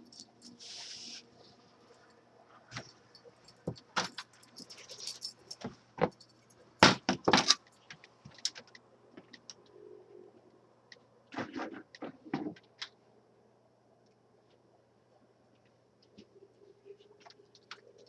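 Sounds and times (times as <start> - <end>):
clicks clinks and knocks: 2.8 - 6.6.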